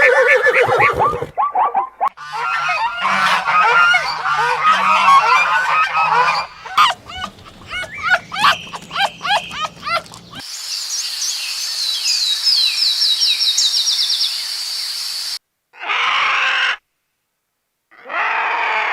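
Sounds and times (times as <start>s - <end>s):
waterfowl honking: 2.2s - 10.4s.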